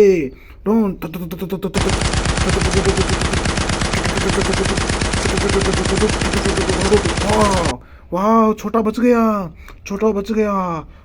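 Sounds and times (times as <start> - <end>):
machine gun firing: 1.8 - 7.8.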